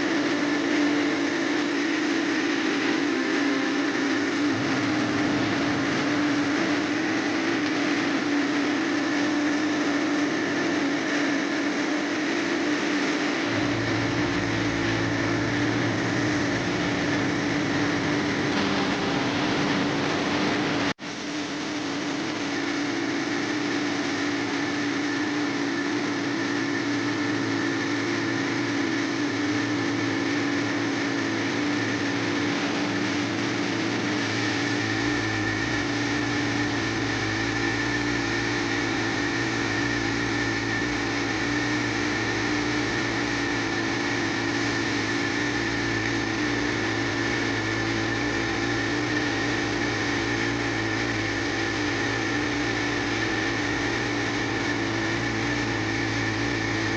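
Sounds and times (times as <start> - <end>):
steady machine hum: 0.0 - 56.9
deep rumble: 1.5 - 11.2, 13.2 - 21.0.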